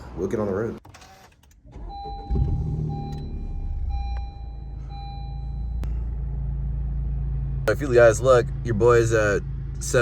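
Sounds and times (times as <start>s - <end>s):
car engine starting and idling: 0.2s - 10.0s
dashboard warning chime: 1.8s - 5.8s.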